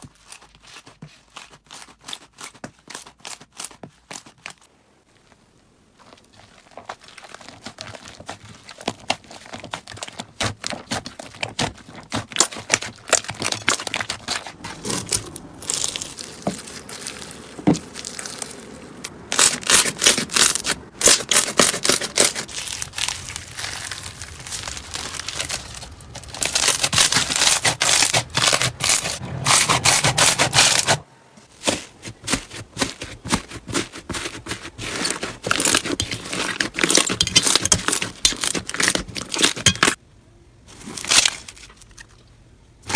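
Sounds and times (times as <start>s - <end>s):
slime crackling and popping: 6.0s - 29.2s, 34.8s - 40.0s.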